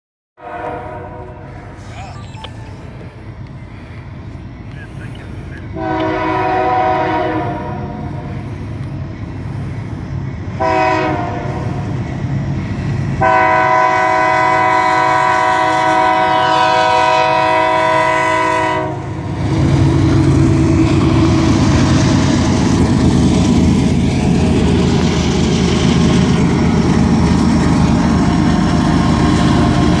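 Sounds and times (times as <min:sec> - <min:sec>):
locomotive horn blasts: 0:00.4 - 0:01.5, 0:05.7 - 0:08.0, 0:10.6 - 0:11.6, 0:13.2 - 0:19.1
locomotive engines rumbling: 0:00.5 - 0:30.0.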